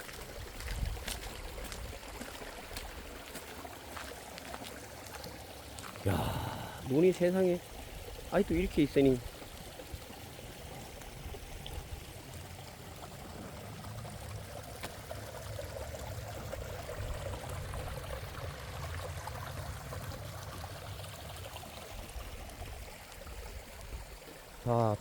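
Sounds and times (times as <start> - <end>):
water running: 0.0 - 18.3.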